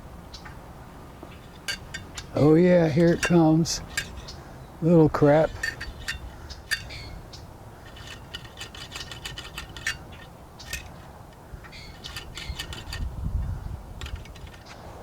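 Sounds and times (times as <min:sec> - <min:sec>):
metal tool clicking and scraping: 0:01.4 - 0:04.4, 0:05.0 - 0:13.1, 0:14.0 - 0:14.8.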